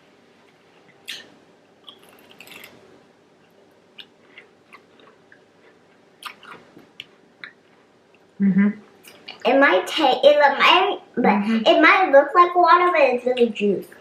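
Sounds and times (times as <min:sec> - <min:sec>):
person chewing food: 0:00.4 - 0:02.8, 0:03.4 - 0:08.3.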